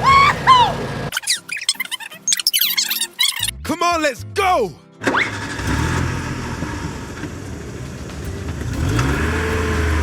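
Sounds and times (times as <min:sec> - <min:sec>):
car engine revving: 0:05.1 - 0:10.0.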